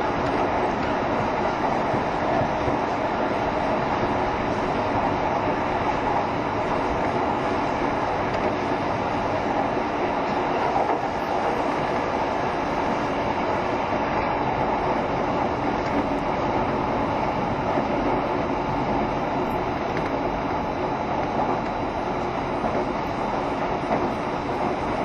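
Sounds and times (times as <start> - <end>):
electric train rumbling: 0.0 - 25.0.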